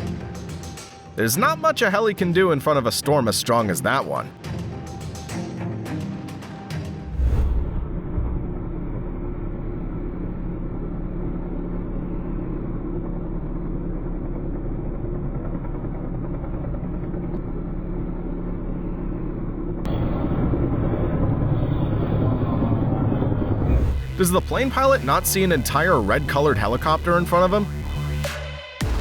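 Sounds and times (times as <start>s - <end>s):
helicopter engine and rotor: 8.5s - 27.7s.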